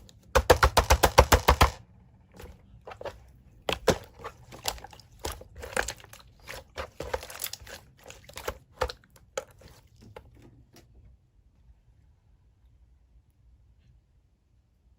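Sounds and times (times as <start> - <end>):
slime squishing with sticky pops: 2.4 - 10.1.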